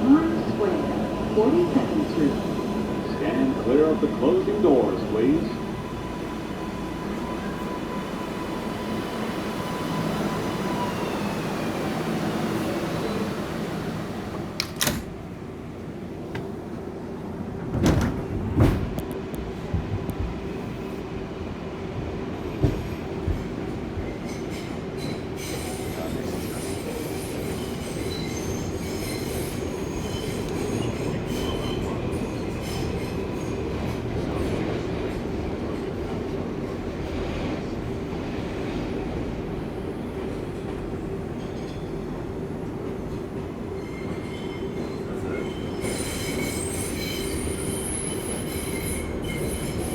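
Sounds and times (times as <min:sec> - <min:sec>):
subway car rumble and hum: 0:00.0 - 0:49.9
wheel squeal: 0:45.3 - 0:49.9.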